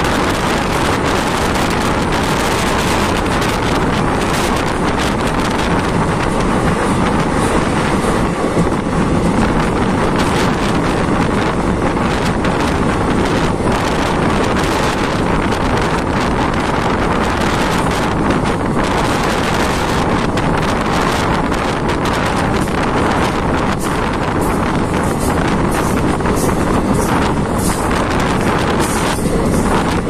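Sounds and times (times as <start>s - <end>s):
train rumbling and clattering on track: 0.0s - 30.0s
wind buffeting microphone: 0.0s - 30.0s.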